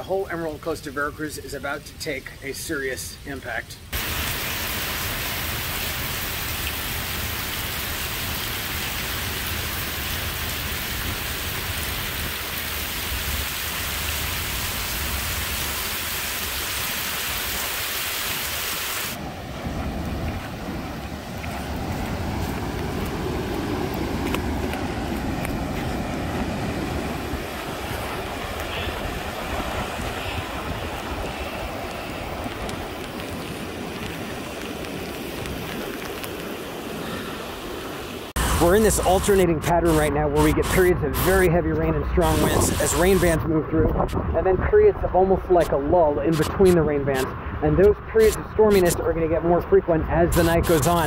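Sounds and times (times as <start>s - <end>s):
wind: 0.0s - 51.0s
heavy rain pouring: 3.8s - 43.4s, 44.7s - 49.2s, 50.3s - 51.0s
surf breaking on a beach: 18.2s - 51.0s.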